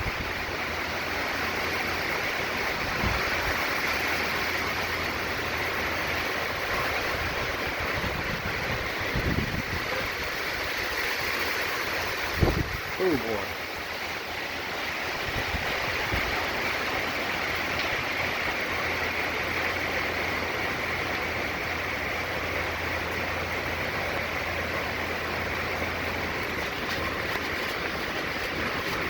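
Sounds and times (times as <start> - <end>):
hurricane wind: 0.0 - 21.0
heavy rain: 0.0 - 29.0.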